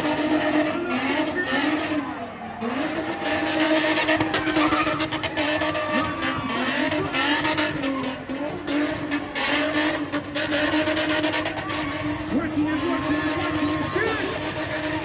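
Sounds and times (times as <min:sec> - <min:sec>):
car engine revving high: 0:00.0 - 0:15.0
tyres squealing in wheelspin: 0:00.0 - 0:15.0.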